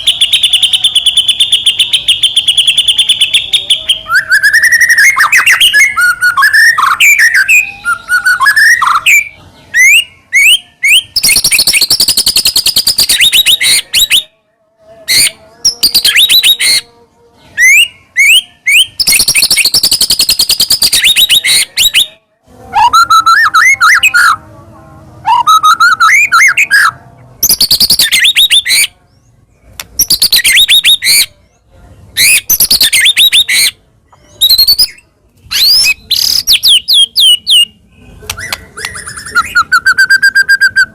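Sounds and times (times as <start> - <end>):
bird singing whistled phrases: 0.0 - 14.3, 15.1 - 16.9, 17.6 - 22.2, 22.8 - 24.4, 25.3 - 28.9, 30.0 - 31.3, 32.2 - 40.9
rapid bird chattering: 34.4 - 40.0.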